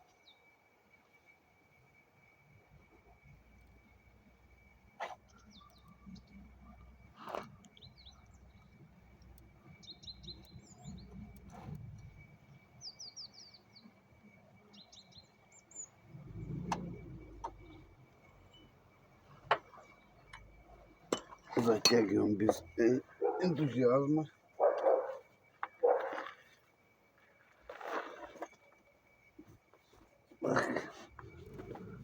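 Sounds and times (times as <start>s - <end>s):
small birds chirping: 5.0s - 7.0s, 7.6s - 14.0s, 14.6s - 29.2s.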